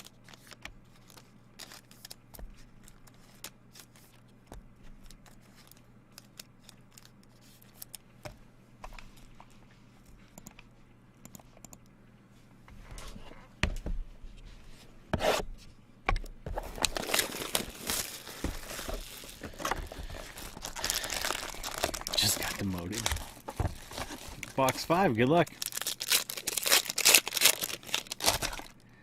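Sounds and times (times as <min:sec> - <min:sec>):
plastic wrapper tearing and crinkling: 0:00.0 - 0:02.2, 0:16.7 - 0:28.8.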